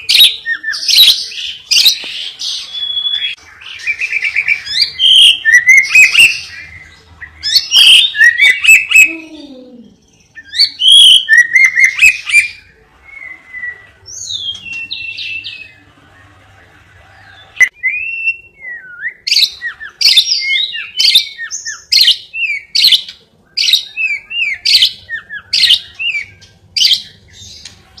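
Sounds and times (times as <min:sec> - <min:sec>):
songbird trilling and chirping: 0:00.0 - 0:15.8, 0:17.2 - 0:27.8.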